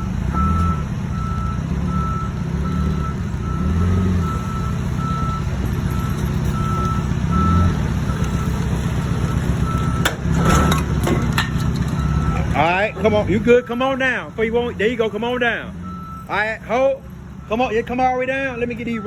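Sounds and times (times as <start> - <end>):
forklift engine running: 0.0 - 19.0
backup alarm beeping: 9.2 - 10.1, 12.0 - 13.4, 15.8 - 16.4.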